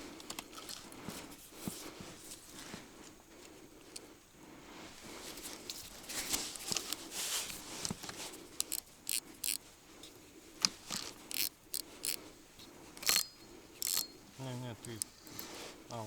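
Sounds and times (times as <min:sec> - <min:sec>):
fishing tackle rustling: 0:05.0 - 0:16.0
small sharp clicks and clinks: 0:08.6 - 0:09.6, 0:13.0 - 0:14.2, 0:14.8 - 0:15.6.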